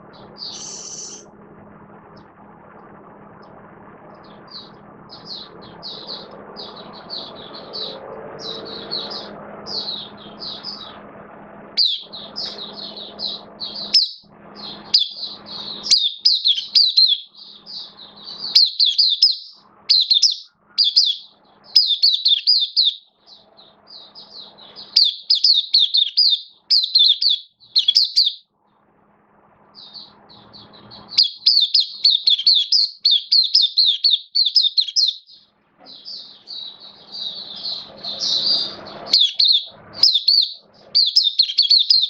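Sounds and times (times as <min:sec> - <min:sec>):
bird twittering song: 0:00.0 - 0:01.3, 0:03.4 - 0:11.0, 0:11.8 - 0:28.5, 0:29.7 - 0:42.0
low hum: 0:00.0 - 0:25.8, 0:26.5 - 0:32.2.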